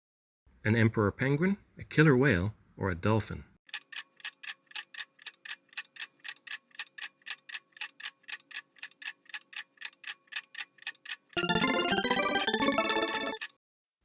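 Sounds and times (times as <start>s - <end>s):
clock-style ticking timer: 3.7s - 13.6s
chiming jingle: 11.4s - 13.4s.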